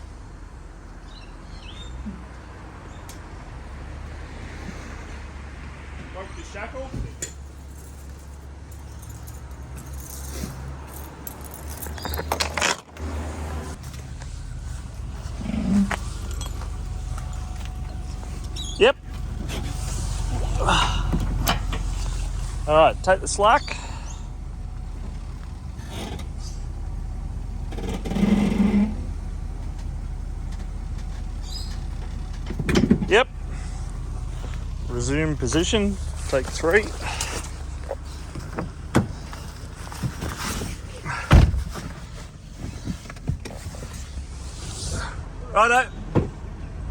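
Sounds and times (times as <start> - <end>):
vehicle engine idling: 0.0 - 46.9
metallic clinking and jingling: 7.2 - 12.9, 16.0 - 27.9.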